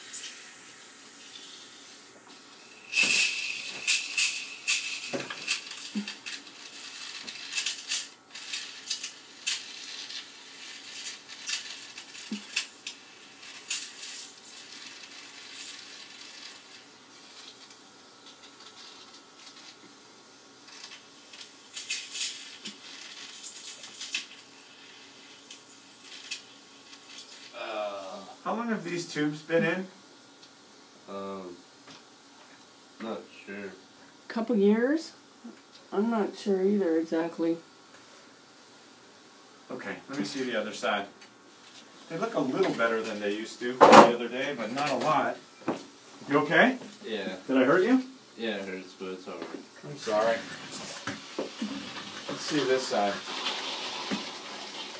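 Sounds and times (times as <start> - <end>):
suction tube hissing: 0.0 - 17.6, 50.8 - 54.9
crackling and slurping clicks: 2.9 - 19.9, 20.6 - 27.5, 51.0 - 54.9.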